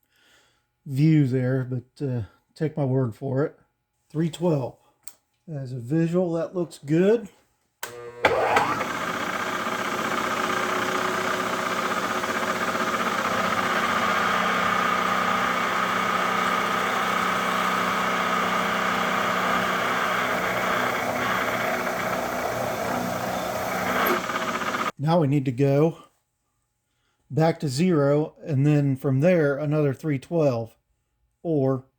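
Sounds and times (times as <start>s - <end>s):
milling machine motor humming: 7.8s - 24.9s.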